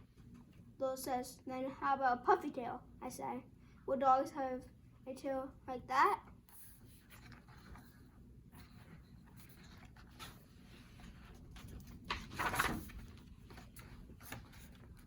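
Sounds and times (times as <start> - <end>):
paper page rustling: 9.1 - 15.0.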